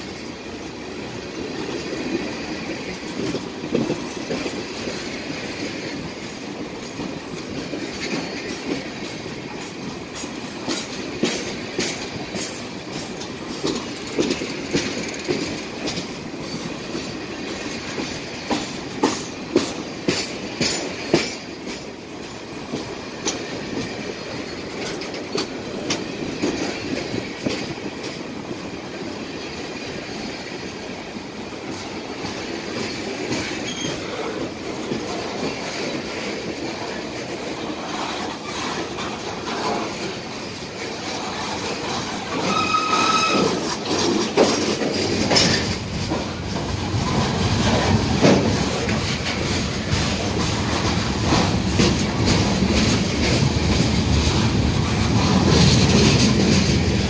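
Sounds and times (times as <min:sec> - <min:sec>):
train wheels rumbling and clattering: 0:00.0 - 0:57.0
high-pitched wheel squeal: 0:42.3 - 0:43.6.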